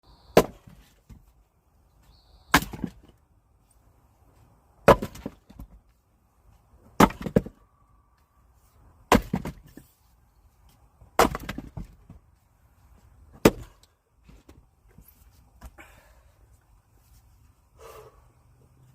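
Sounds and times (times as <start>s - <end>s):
axe chopping firewood: 0.3s - 1.2s, 2.5s - 3.2s, 4.8s - 5.8s, 6.9s - 7.6s, 9.1s - 9.8s, 11.1s - 12.2s, 13.3s - 13.9s.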